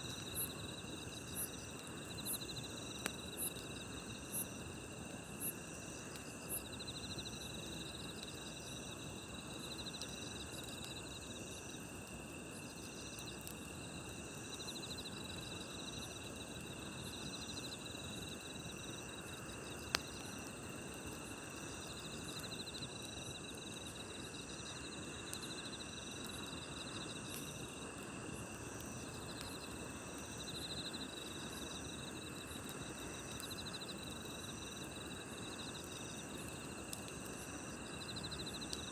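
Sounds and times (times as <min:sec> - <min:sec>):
campfire rushing and crackling: 0:00.0 - 0:38.9
crickets and night insects trilling: 0:00.0 - 0:38.9.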